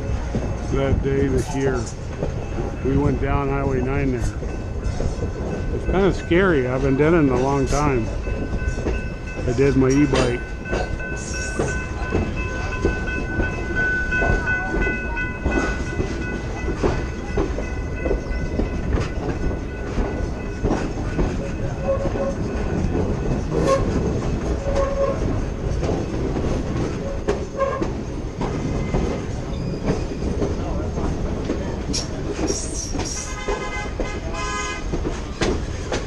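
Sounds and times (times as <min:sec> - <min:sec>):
train rumbling on rails: 0:00.0 - 0:36.0
wheel squeals: 0:24.6 - 0:25.3, 0:28.5 - 0:30.4, 0:32.0 - 0:33.5.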